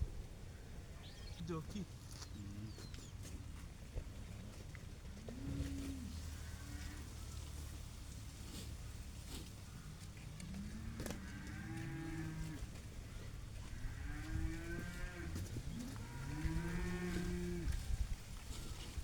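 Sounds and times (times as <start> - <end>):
cow mooing: 5.2 - 7.2, 10.4 - 12.7, 13.6 - 17.8.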